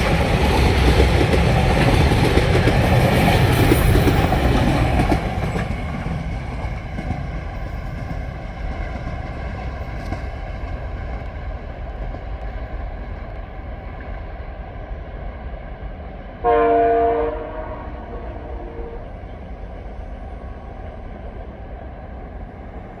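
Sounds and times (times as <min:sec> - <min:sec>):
locomotive horn blast: 0:16.4 - 0:19.2.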